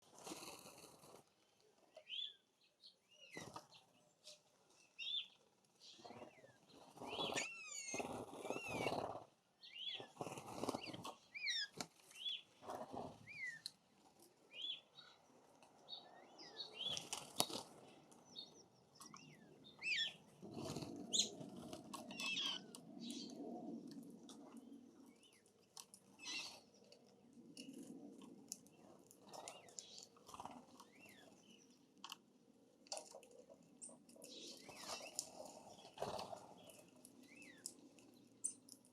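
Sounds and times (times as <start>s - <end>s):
birds scuffling: 0.0s - 1.4s, 3.2s - 15.8s, 16.4s - 24.8s, 32.8s - 38.8s
songbirds chirping: 0.0s - 38.9s
wings fluttering: 3.2s - 4.4s, 5.1s - 14.7s, 16.6s - 18.2s, 19.0s - 31.6s, 33.0s - 38.8s.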